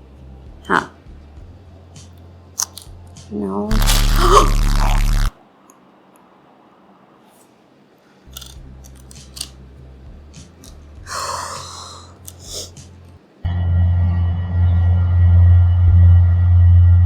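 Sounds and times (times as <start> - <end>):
plastic puzzle pieces clicking: 2.6 - 2.9, 8.3 - 9.6.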